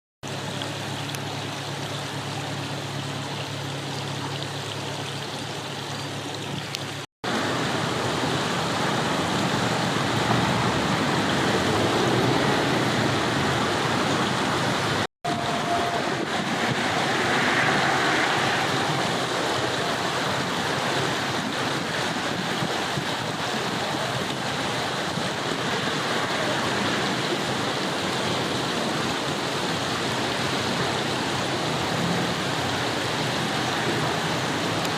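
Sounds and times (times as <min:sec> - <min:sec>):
river water flowing over stones: 0:00.2 - 0:34.9.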